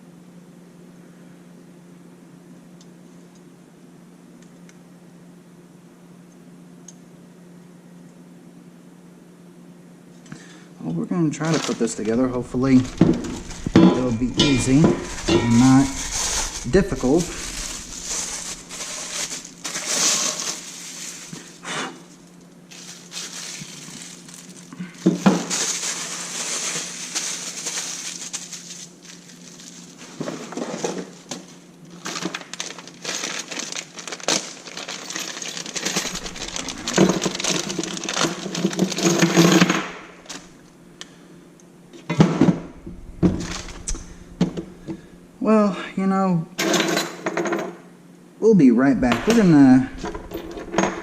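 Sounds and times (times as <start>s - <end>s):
plastic packaging crinkling: 17.6s - 21.6s, 22.6s - 40.5s.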